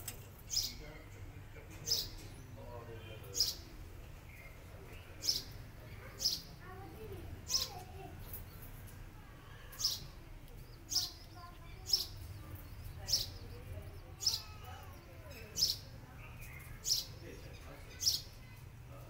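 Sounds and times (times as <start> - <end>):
bird chirping: 0.4 - 1.0, 1.7 - 6.7, 9.7 - 18.6.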